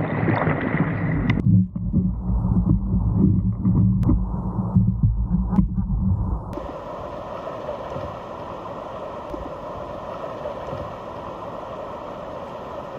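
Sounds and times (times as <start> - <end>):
muffled low rumbling: 0.0 - 6.6
whitewater rushing: 6.6 - 12.9.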